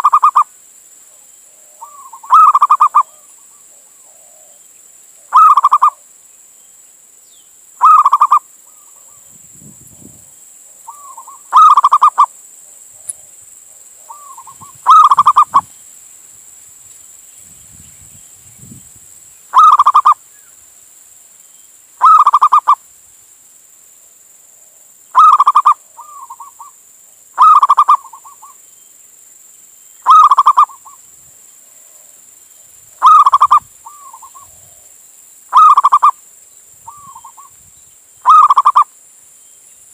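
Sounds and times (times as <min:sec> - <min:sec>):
dove cooing: 0:00.0 - 0:00.5, 0:01.5 - 0:04.6, 0:05.2 - 0:06.0, 0:07.8 - 0:09.2, 0:10.8 - 0:12.3, 0:14.0 - 0:15.7, 0:19.5 - 0:20.2, 0:22.0 - 0:22.8, 0:25.2 - 0:26.7, 0:27.4 - 0:28.5, 0:30.0 - 0:31.0, 0:33.0 - 0:34.8, 0:35.5 - 0:36.2, 0:38.2 - 0:38.9.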